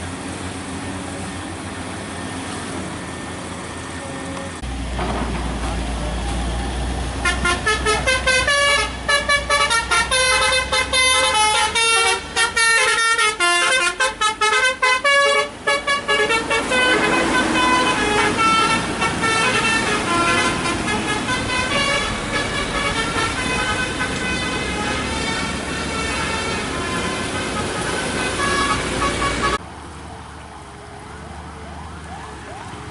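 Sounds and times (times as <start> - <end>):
road traffic: 0.0 - 32.9
long vehicle horn tones: 7.2 - 29.6
multi-tone musical horn toots: 7.2 - 29.6.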